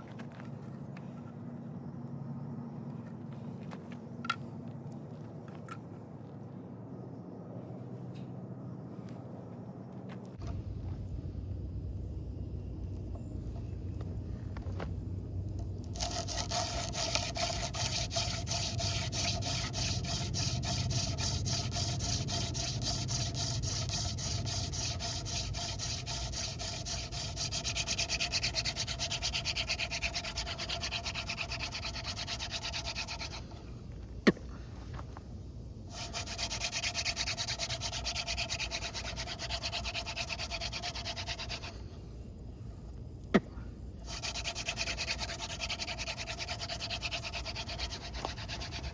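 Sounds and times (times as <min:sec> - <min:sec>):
wood rubbing on wood: 0:15.9 - 0:33.5, 0:35.9 - 0:41.7, 0:44.0 - 0:48.9.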